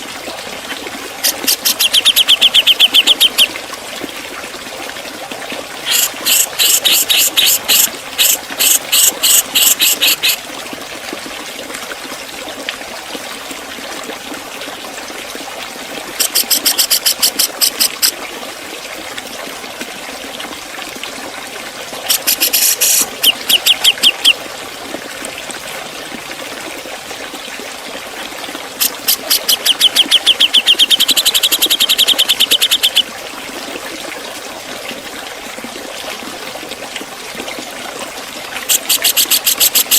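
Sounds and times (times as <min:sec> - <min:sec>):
bird singing sharp high notes: 0:01.6 - 0:03.5.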